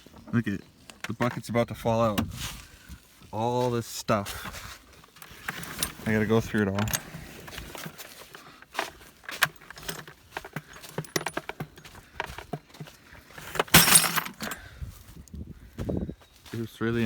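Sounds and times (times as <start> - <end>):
clattering rustle: 4.4 - 14.7
scrap metal clinking: 5.1 - 12.4, 13.3 - 14.7.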